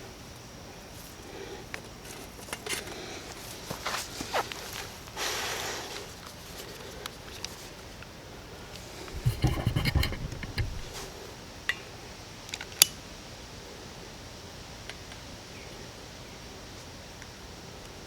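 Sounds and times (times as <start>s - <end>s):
handling knocks and rattling: 9.1s - 11.1s.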